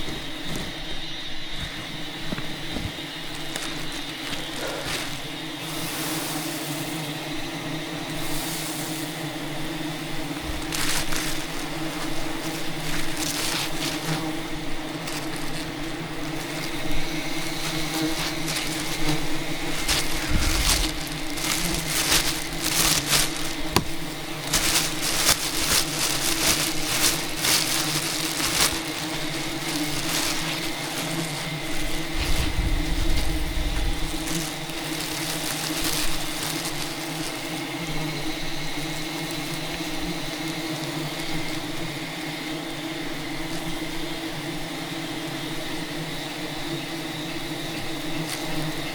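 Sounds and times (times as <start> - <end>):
honeybees buzzing: 0.0 - 48.9
dense crackling and snapping: 1.6 - 5.6, 10.2 - 37.6.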